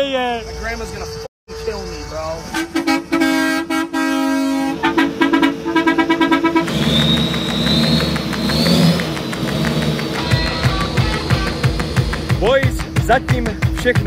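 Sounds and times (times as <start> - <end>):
car horn honking: 0.4 - 12.1
vehicle engine noise: 0.5 - 14.0
high whine: 4.6 - 13.7.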